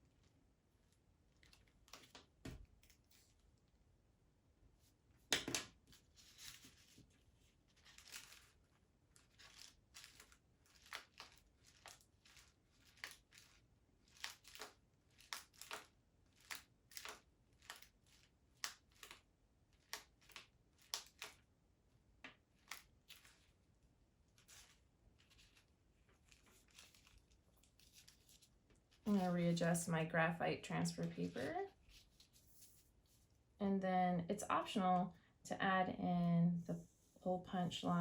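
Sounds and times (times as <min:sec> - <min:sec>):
paper rustle: 0:05.8 - 0:21.4, 0:22.5 - 0:23.6, 0:24.3 - 0:29.5, 0:31.0 - 0:33.3.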